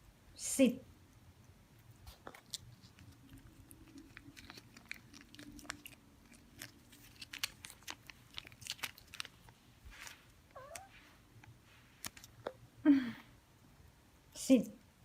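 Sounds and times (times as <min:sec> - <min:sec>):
cat chewing food: 0:01.5 - 0:10.8.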